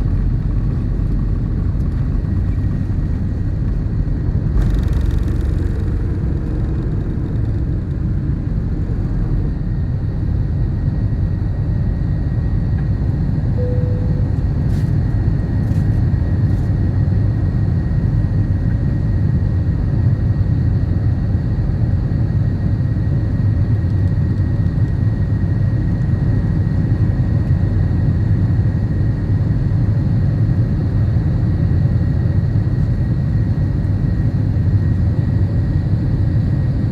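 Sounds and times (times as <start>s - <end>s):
airplane engine rumble: 0.0s - 36.9s
faint high-pitched whine: 13.6s - 14.6s.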